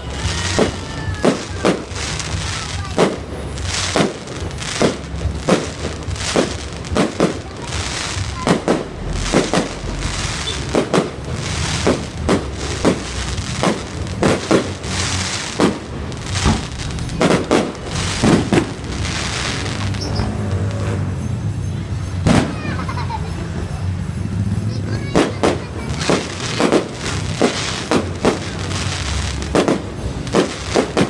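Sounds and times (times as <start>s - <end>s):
fireworks bangs: 0.0s - 21.2s, 22.0s - 31.0s.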